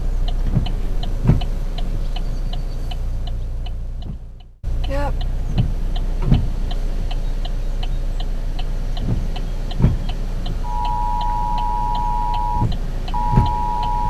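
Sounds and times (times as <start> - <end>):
car turn signal clicking: 0.0 - 14.0
low vehicle rumble: 0.0 - 14.0
steady electronic beep: 10.6 - 14.0
dull thumps: 10.7 - 14.0.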